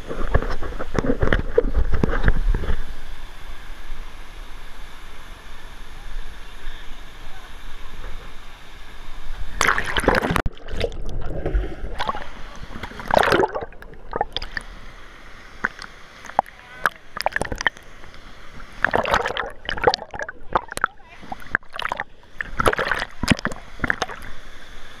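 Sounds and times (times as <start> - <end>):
rushing water: 0.0 - 25.0
loud splash: 9.6 - 14.6, 18.8 - 24.2
water sloshing and splashing: 9.6 - 14.9, 15.5 - 24.4.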